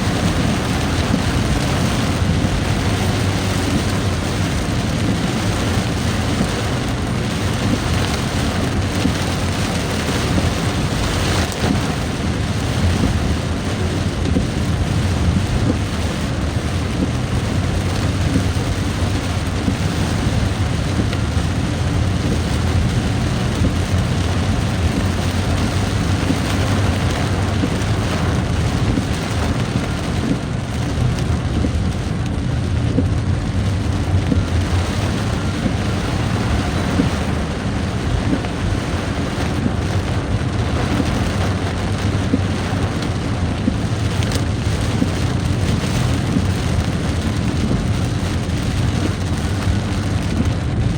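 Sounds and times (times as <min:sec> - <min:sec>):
heavy rain hissing: 0:00.0 - 0:50.9
vehicle engine hum: 0:00.0 - 0:50.9
wet road noise: 0:00.0 - 0:50.9.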